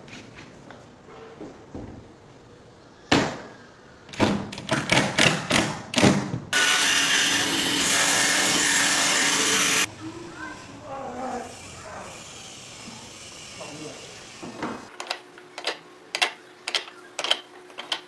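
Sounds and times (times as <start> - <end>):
power tool running: 6.6 - 9.9
rhythmic sawing strokes: 6.6 - 9.9.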